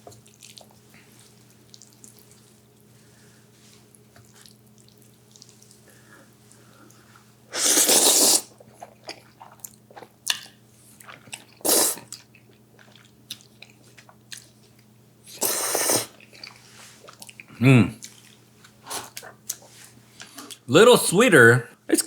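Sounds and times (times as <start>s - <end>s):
soft chewing: 0.0s - 7.4s, 8.5s - 20.7s
noodles being slurped: 7.5s - 10.1s, 11.1s - 12.2s, 15.3s - 17.4s.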